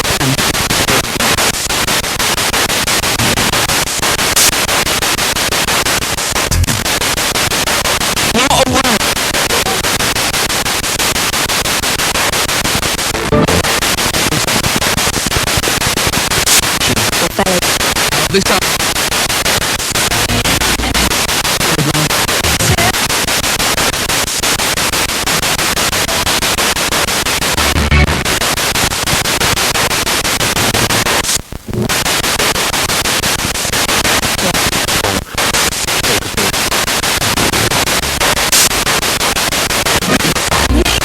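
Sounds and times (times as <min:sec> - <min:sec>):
radio static chopped: 0:00.0 - 0:41.0
snatches of radio broadcast: 0:00.0 - 0:41.0.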